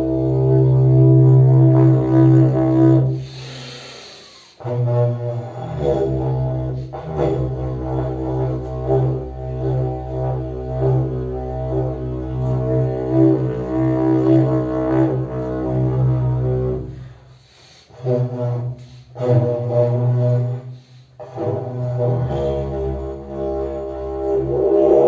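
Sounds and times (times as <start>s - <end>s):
didgeridoo drone: 0.0s - 3.2s, 4.6s - 17.2s, 17.9s - 20.6s, 21.2s - 25.0s
breathy hiss: 3.2s - 4.6s, 16.9s - 18.0s.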